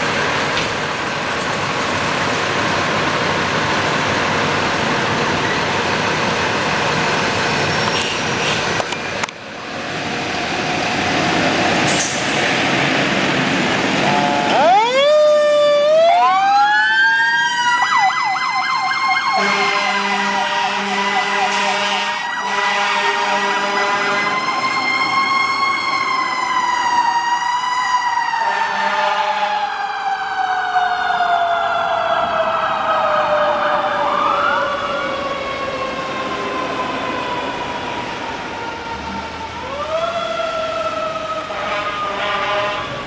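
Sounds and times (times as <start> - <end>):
fire engine siren wailing: 8.7 - 43.0.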